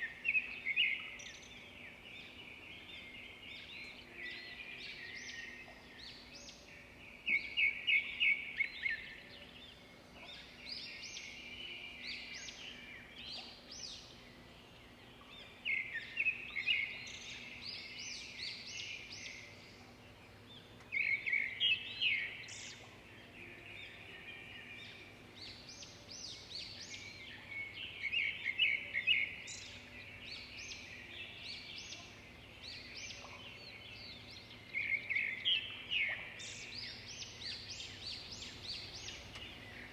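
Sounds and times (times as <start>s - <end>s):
birds chirping: 20.9s - 39.9s.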